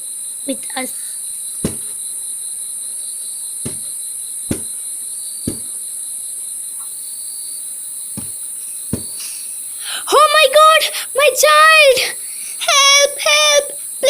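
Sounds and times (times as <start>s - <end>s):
crickets chirping: 0.0s - 14.0s
soft taps: 1.6s - 1.9s, 3.7s - 3.9s, 4.5s - 4.7s, 5.5s - 5.7s, 8.2s - 9.3s.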